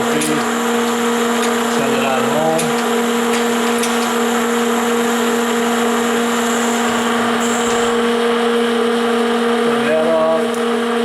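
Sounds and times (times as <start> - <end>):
grinder running with hum and hiss: 0.0 - 11.0.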